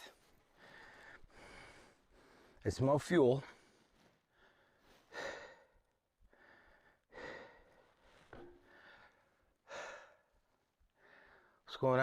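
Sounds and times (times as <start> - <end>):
man breathing hard: 0.5 - 2.6, 3.6 - 11.6.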